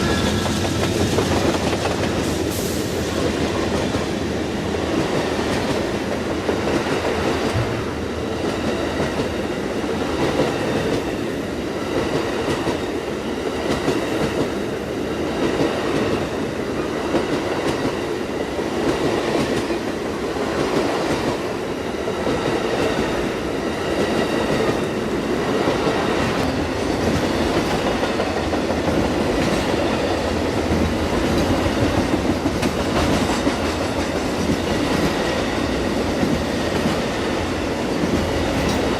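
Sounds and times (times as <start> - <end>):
train wheels rumbling on rail: 0.0 - 38.9
clicking over rail joints: 25.9 - 35.2.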